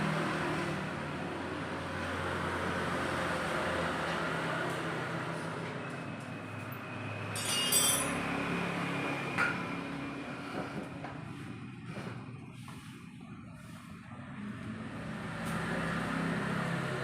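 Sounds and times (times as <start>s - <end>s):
engine running: 0.0s - 17.0s
high metallic ringing: 7.2s - 8.3s.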